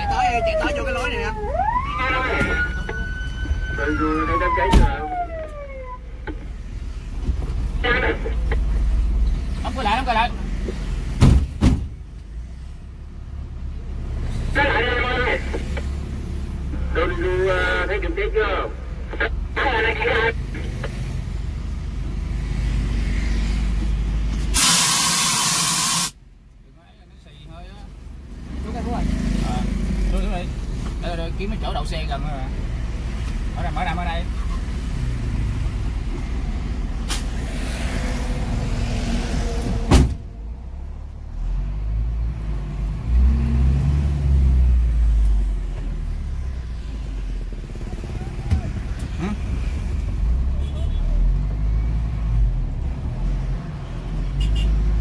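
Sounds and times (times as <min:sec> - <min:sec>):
fire engine rumbling: 0:00.0 - 0:27.0
sharp thump: 0:11.2 - 0:12.0, 0:39.9 - 0:40.3
loud hiss: 0:24.5 - 0:26.2.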